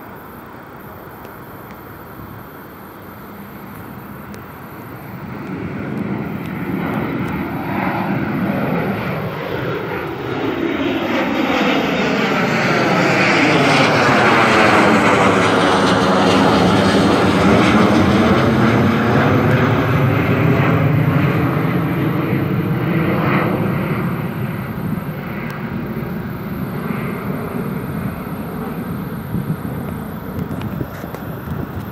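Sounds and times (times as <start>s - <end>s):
jet engines roaring: 0.0s - 31.9s.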